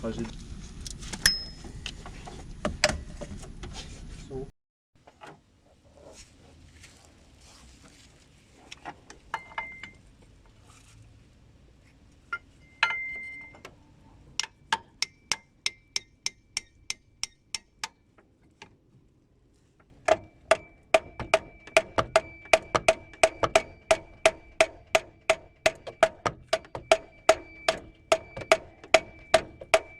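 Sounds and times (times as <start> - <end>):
metal tools clinking: 12.3 - 13.6
sharp taps on metal: 14.4 - 18.7, 20.0 - 29.9.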